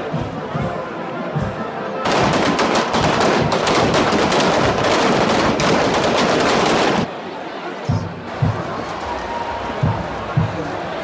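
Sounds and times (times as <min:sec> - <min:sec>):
fireworks crackling: 0:02.1 - 0:07.1.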